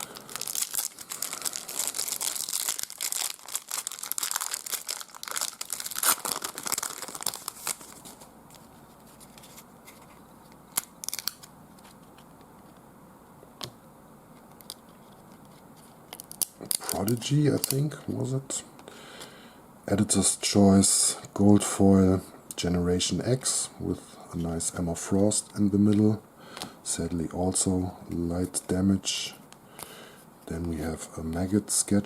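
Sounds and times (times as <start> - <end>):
wrapper tearing and crinkling: 0.0 - 8.3, 10.7 - 11.5, 16.1 - 17.9.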